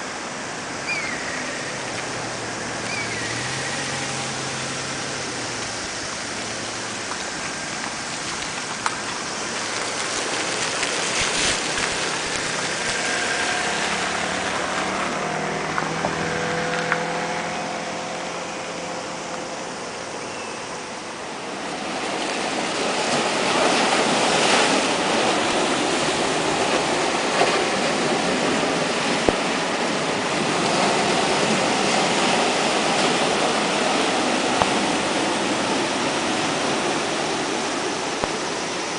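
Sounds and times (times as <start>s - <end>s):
sea surf breaking: 0.0s - 38.9s
faint humming tone: 0.8s - 6.8s.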